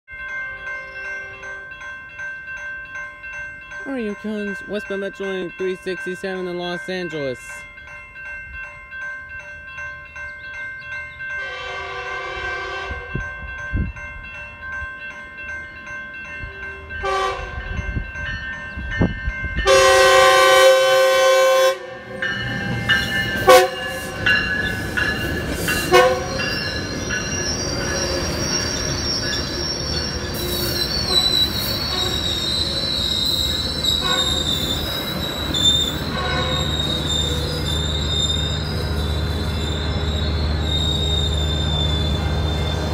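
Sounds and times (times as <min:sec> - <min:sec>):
crossing bells ringing: 0:00.0 - 0:42.9
train horn blasts: 0:11.4 - 0:13.2, 0:17.0 - 0:17.7, 0:19.6 - 0:22.1, 0:23.4 - 0:24.1, 0:25.8 - 0:26.4, 0:31.9 - 0:32.2, 0:34.0 - 0:34.5, 0:36.1 - 0:36.8
train wheels squealing: 0:24.1 - 0:42.9.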